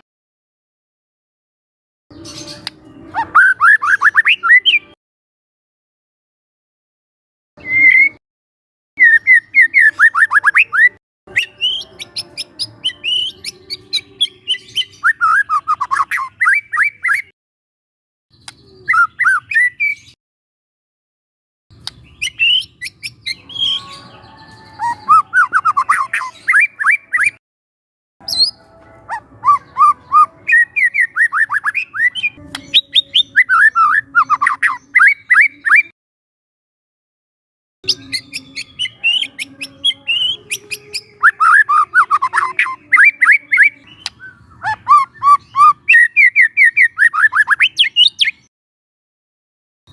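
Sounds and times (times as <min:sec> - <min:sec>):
bird whistling song: 0:02.1 - 0:05.0, 0:07.6 - 0:08.2, 0:09.0 - 0:17.3, 0:18.3 - 0:20.2, 0:21.8 - 0:27.4, 0:28.2 - 0:35.9, 0:37.9 - 0:48.5
sharp clicking bird notes: 0:18.4 - 0:18.9, 0:21.7 - 0:22.4.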